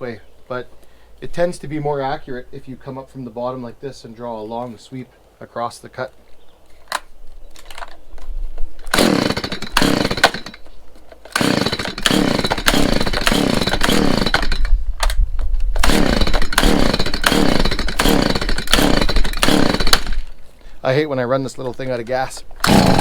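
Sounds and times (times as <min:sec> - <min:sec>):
chainsaw cutting timber: 0:08.9 - 0:10.7, 0:11.3 - 0:14.8, 0:15.8 - 0:20.4, 0:22.6 - 0:23.0.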